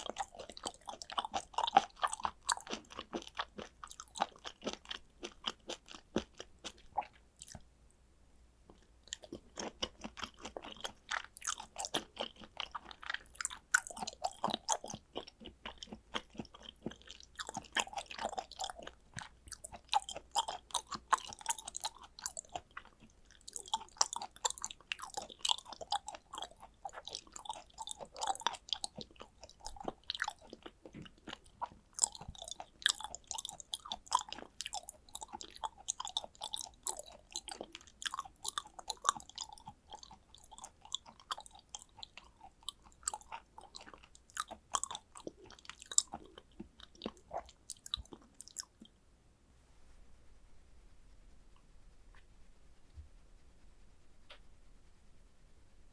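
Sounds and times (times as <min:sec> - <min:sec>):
wet chewing mouth clicks: 0:00.0 - 0:07.7, 0:08.7 - 0:49.0.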